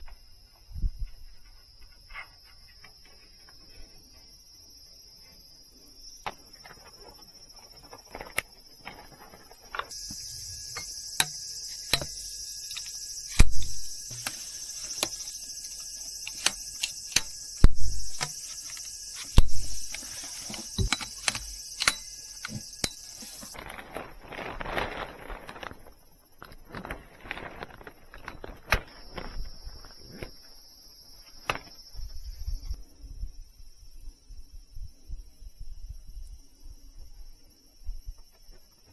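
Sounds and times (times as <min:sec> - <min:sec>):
insects chorus: 0:00.0 - 0:38.9
sharp clicks and knocks: 0:08.1 - 0:23.6.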